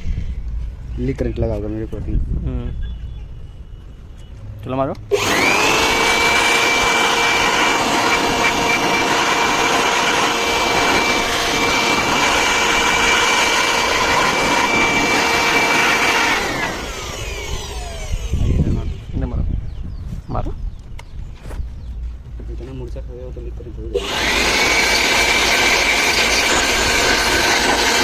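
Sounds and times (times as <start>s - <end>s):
pressure washer pump whine: 5.1s - 19.1s, 24.0s - 28.0s.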